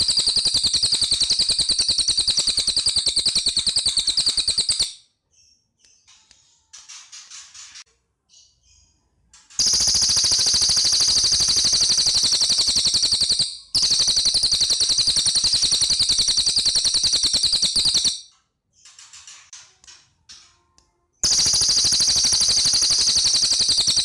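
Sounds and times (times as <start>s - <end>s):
bird rattling trills: 0.0s - 5.0s, 9.6s - 18.2s, 21.2s - 24.0s.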